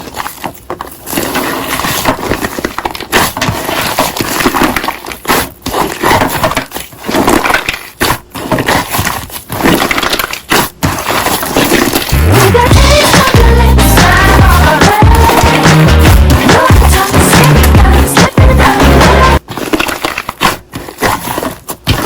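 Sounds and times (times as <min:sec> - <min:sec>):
background music: 0:12.2 - 0:19.4.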